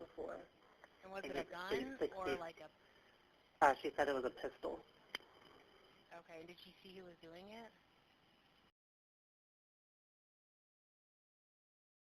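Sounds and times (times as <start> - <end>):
faint telephone line hiss: 0.0 - 8.7.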